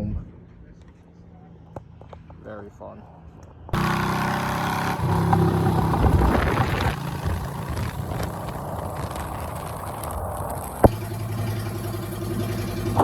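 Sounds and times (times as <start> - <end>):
motorcycle engine revving: 3.8 - 13.0.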